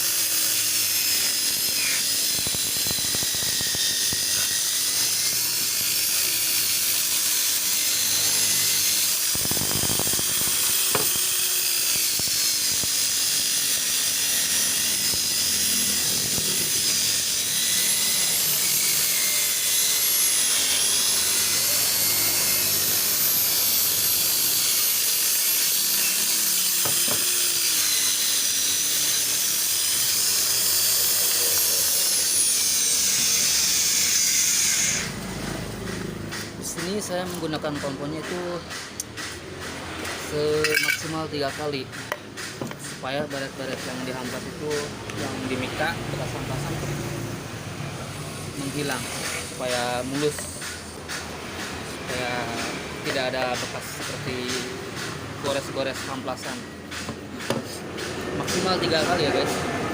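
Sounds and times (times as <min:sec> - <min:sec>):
electric polishing machine whining: 0:00.0 - 0:36.1.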